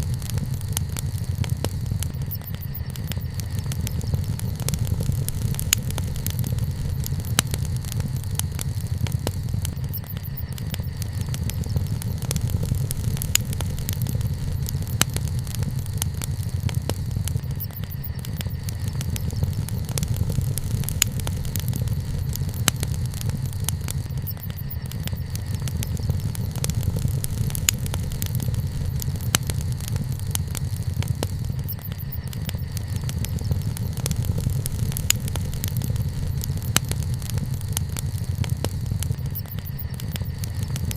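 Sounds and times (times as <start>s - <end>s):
campfire crackling and popping: 0.0s - 40.9s
low fire rumble: 0.0s - 40.9s.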